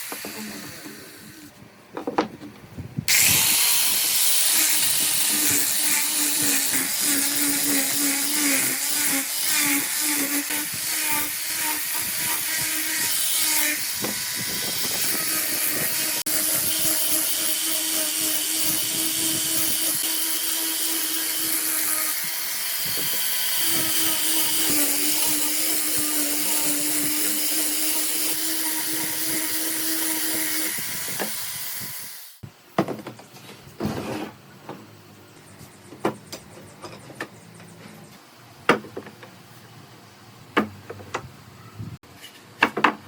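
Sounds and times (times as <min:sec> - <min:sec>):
power tool hissing and humming: 0:00.0 - 0:01.5, 0:03.1 - 0:32.4.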